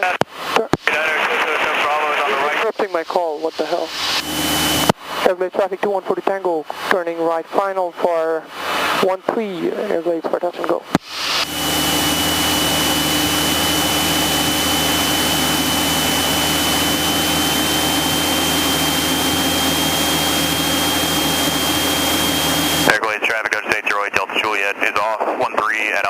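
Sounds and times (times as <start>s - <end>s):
aircraft engine and propeller: 3.6s - 5.3s, 11.0s - 23.7s.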